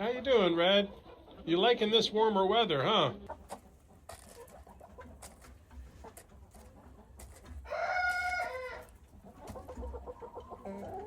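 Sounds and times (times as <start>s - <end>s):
soft clucking: 3.2s - 11.0s
chicken drawn-out call: 7.6s - 11.0s.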